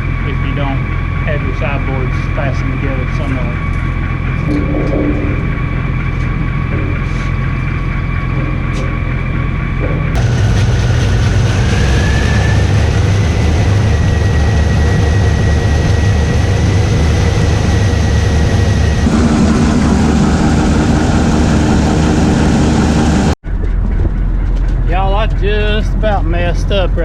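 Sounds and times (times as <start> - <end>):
high whine: 0.0 - 23.6
combine harvester running: 0.0 - 27.0.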